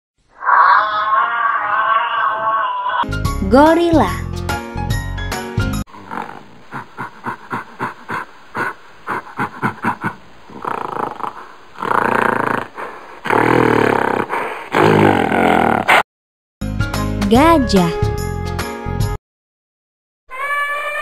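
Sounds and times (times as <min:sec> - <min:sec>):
gorilla hooting and roaring: 0:00.3 - 0:03.0.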